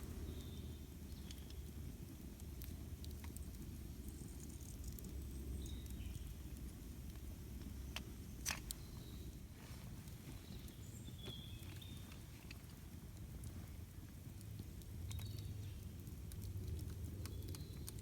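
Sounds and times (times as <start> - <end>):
campfire burning: 0.0 - 18.0
fire crackles and pops: 0.0 - 18.0
birds chirping: 10.3 - 12.3.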